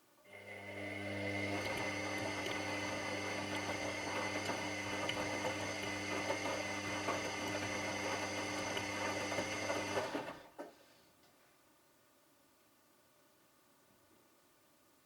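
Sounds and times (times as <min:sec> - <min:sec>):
washing machine motor running: 0:00.3 - 0:10.4.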